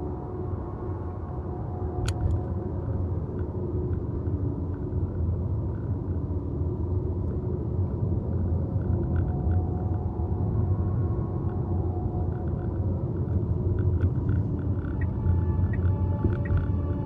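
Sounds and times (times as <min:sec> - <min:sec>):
faint sustained tones: 0:09.1 - 0:17.0.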